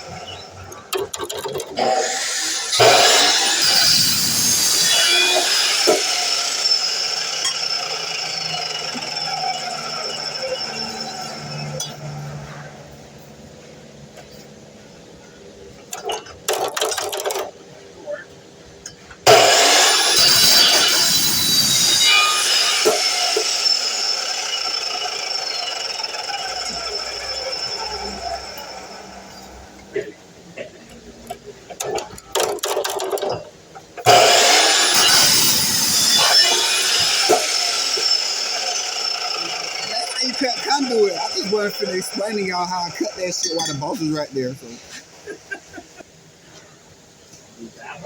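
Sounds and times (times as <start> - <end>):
saw cutting metal screech: 1.7 - 12.8, 19.3 - 30.1, 34.1 - 45.0.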